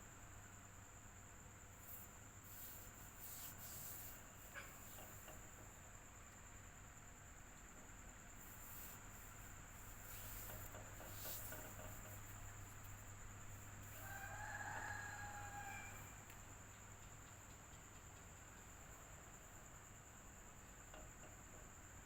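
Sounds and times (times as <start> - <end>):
electric fan running: 0.0 - 22.0.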